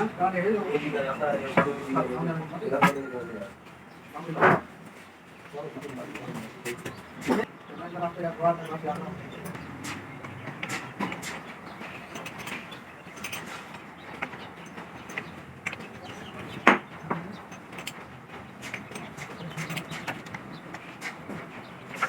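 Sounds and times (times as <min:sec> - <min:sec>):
metal tools clinking: 0:10.6 - 0:21.1.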